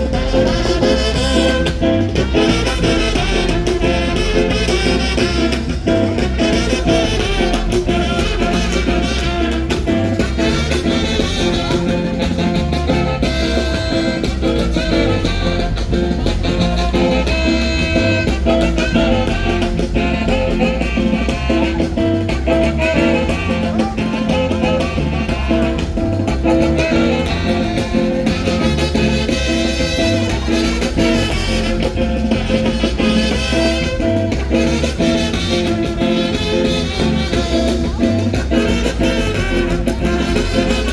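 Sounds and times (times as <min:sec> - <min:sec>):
latin band music with brass: 0:00.0 - 0:40.9.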